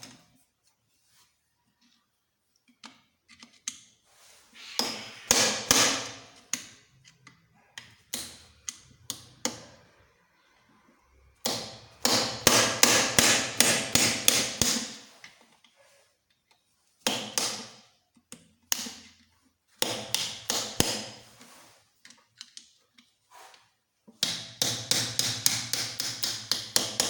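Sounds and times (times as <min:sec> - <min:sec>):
hammer striking metal: 0:04.8 - 0:06.3, 0:11.4 - 0:14.9.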